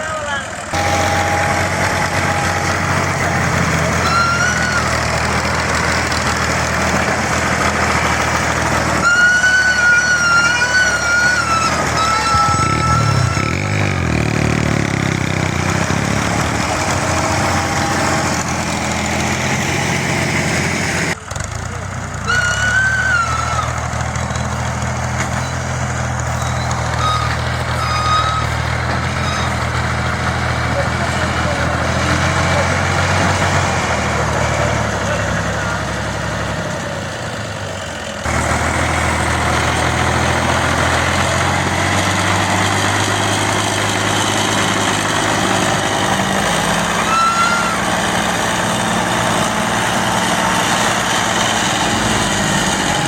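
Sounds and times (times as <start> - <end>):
tractor diesel engine running: 0.0 - 53.0
high thin tone: 0.8 - 5.2, 9.0 - 15.0, 25.2 - 29.7.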